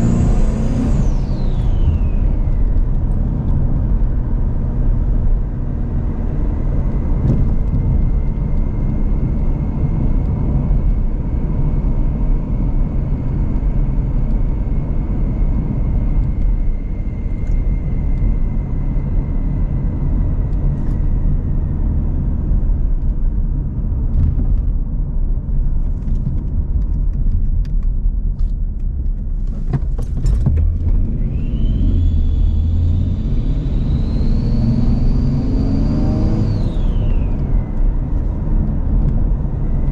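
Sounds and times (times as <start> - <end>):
turbo whine: 0.0 - 21.9, 30.6 - 39.9
car engine and road rumble: 0.0 - 39.9.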